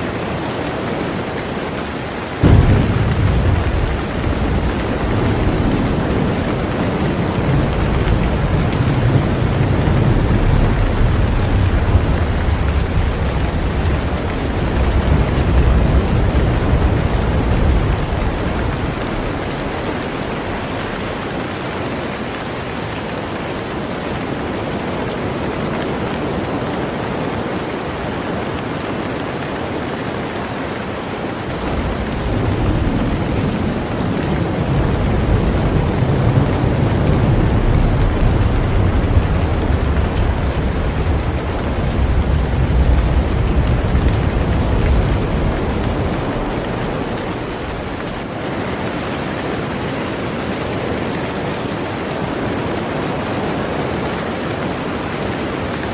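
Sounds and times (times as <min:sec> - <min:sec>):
heavy rain on a boat: 0:00.0 - 0:55.9
low rumble: 0:02.4 - 0:21.0, 0:31.6 - 0:48.2.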